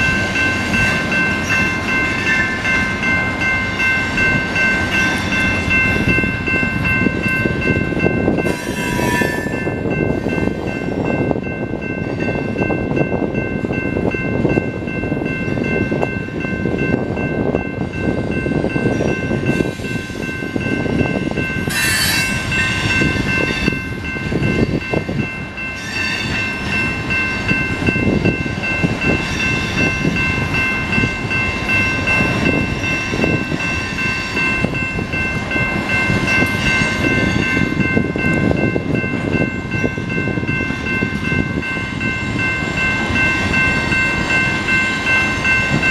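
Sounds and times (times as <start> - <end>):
crossing warning bell: 0.0 - 45.9
train wheels rumbling on rail: 0.0 - 45.9
wheel squeal: 8.5 - 9.6, 21.7 - 22.5.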